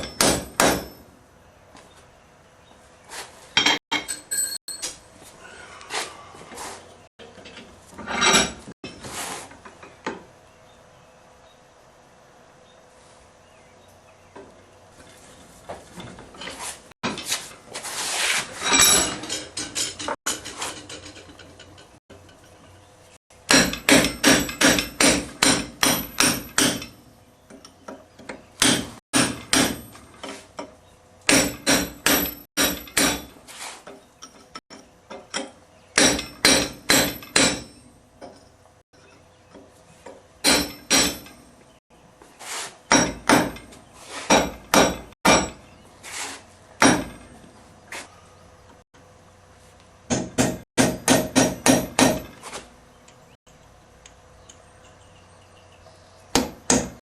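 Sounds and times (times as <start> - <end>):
hammer striking metal on anvil: 0.0 - 1.1, 23.5 - 27.0, 28.6 - 30.0, 31.3 - 33.4, 36.0 - 37.9, 40.4 - 41.5, 44.3 - 45.6, 46.8 - 47.3, 50.1 - 52.3
rough scraping noise: 16.5 - 19.1.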